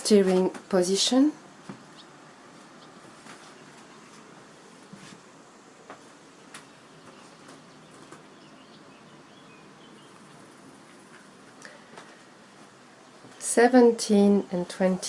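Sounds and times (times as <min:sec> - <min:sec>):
background hiss: 0:00.0 - 0:15.0
distant bird chirps: 0:01.8 - 0:04.2, 0:06.4 - 0:12.0.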